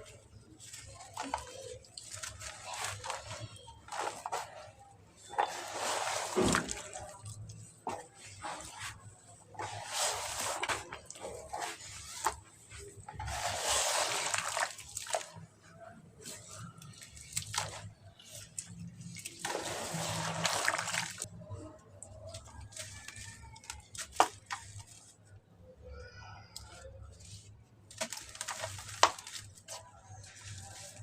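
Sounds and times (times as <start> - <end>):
cement splashing into water: 0.7 - 15.5, 16.3 - 21.3, 27.9 - 31.0.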